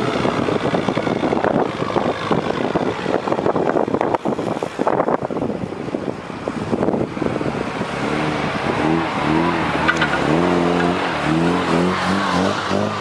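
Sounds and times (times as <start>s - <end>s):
wind rumbling on microphone: 0.0s - 13.0s
engine revving: 7.3s - 13.0s.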